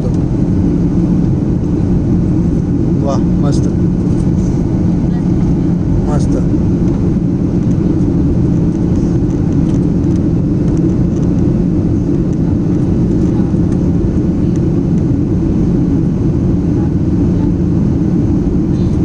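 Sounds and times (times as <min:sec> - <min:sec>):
airplane cabin rumble: 0:00.0 - 0:19.0.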